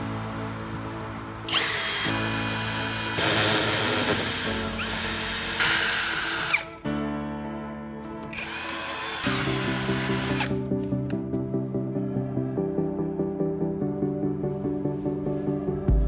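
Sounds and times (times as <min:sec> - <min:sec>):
background music: 0:00.0 - 0:16.0
power drill running: 0:01.5 - 0:06.8, 0:08.3 - 0:10.6.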